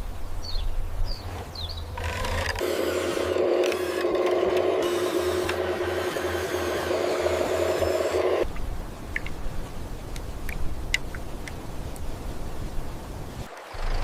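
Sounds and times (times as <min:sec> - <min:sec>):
small electric motor whirring: 0:02.0 - 0:08.4.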